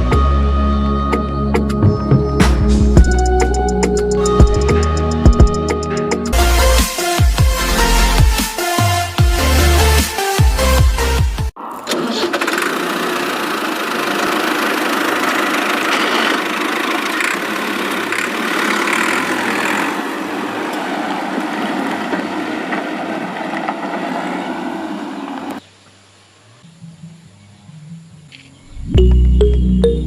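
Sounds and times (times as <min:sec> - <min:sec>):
cement mixer churning: 0:11.9 - 0:20.0.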